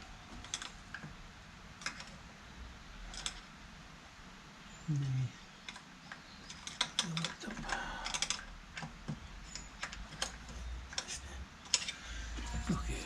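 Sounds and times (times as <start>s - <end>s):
metallic clicks and clunks: 5.7s - 13.0s.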